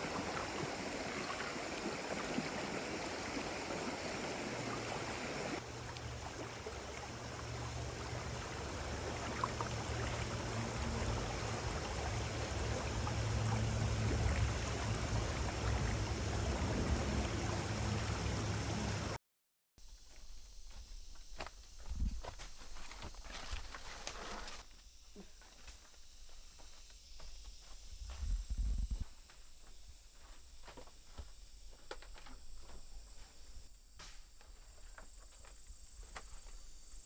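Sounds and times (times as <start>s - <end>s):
stream water rushing: 0.0s - 19.2s.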